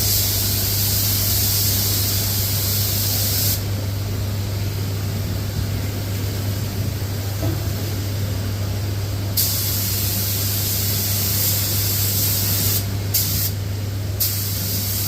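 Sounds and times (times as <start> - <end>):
steady low hum: 0.0 - 15.0
spray gun hissing: 9.4 - 13.6, 14.2 - 15.0.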